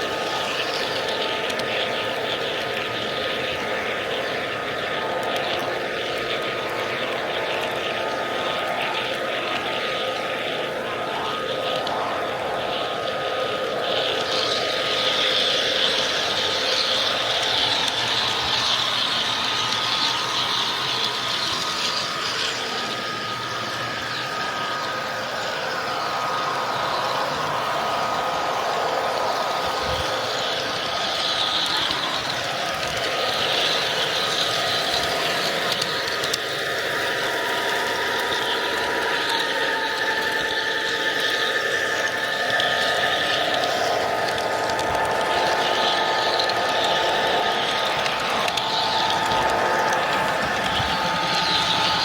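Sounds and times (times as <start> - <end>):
model train wheels rattling on rail: 13.0 - 52.0.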